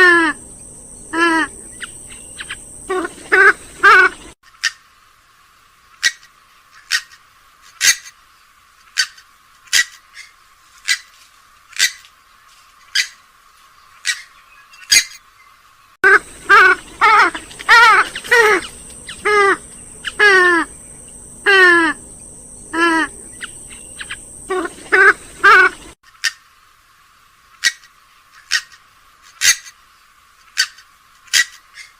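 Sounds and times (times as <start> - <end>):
steady hum: 0.0 - 4.4, 16.0 - 26.0
harsh waterbird calls: 1.0 - 4.8, 16.0 - 26.4.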